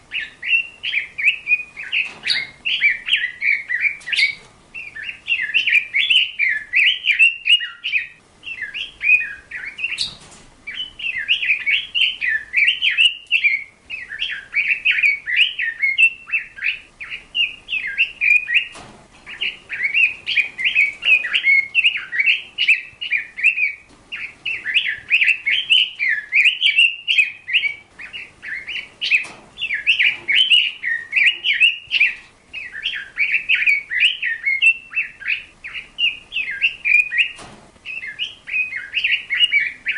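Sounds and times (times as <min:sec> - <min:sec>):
bird chattering warble: 0:00.1 - 0:39.9.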